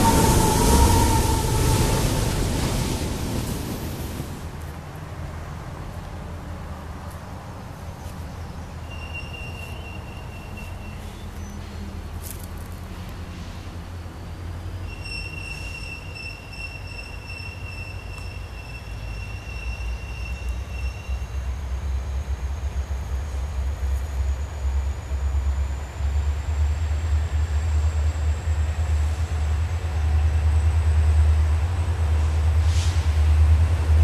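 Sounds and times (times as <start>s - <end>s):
diesel locomotive engine rumble: 0.0s - 34.0s
wheels squealing on track: 8.9s - 11.8s, 14.8s - 21.5s.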